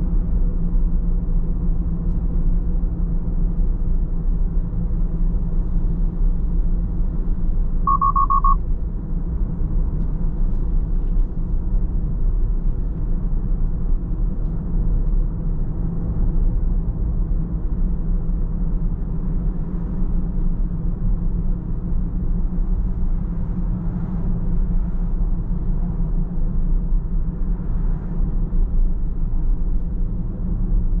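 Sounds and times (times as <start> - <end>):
short high electronic beeps: 7.9 - 8.6.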